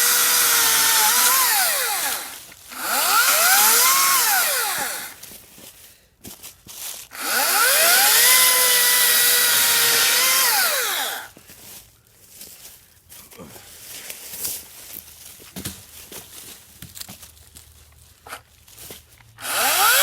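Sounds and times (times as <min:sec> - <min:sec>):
electric chainsaw whining: 0:00.0 - 0:05.2, 0:07.2 - 0:11.4, 0:19.4 - 0:20.0.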